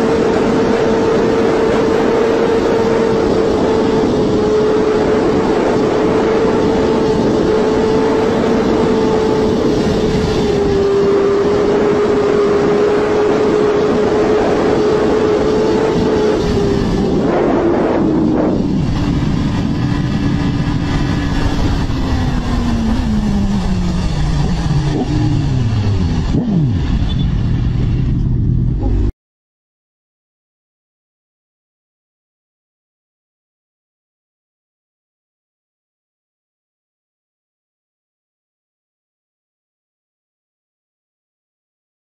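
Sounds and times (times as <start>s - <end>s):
racing motorcycle engines revving: 0.0s - 29.1s.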